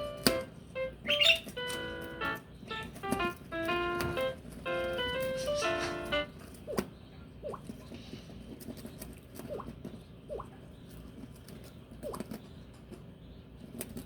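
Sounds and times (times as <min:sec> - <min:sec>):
bird squeaky chirps: 0:00.8 - 0:03.3, 0:04.1 - 0:07.6.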